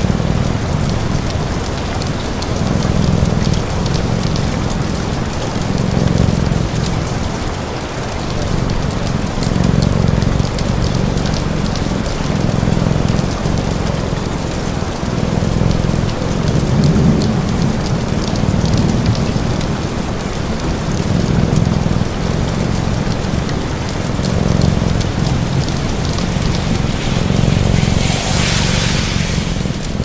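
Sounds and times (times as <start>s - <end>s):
steady rain: 0.0s - 30.0s
fireplace crackling: 20.1s - 30.0s
low rumble: 20.7s - 30.0s.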